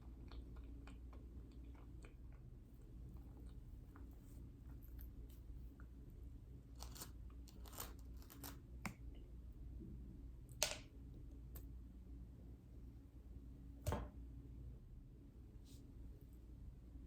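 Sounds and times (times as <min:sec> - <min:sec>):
faint low hum: 0:00.0 - 0:17.0
crunching while chewing: 0:06.7 - 0:08.6.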